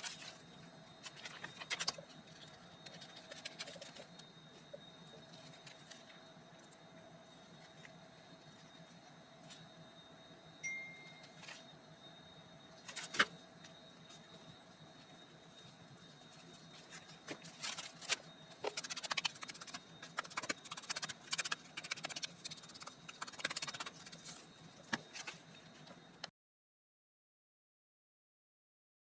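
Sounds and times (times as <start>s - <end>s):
rapid crackling clicks: 17.6s - 24.3s.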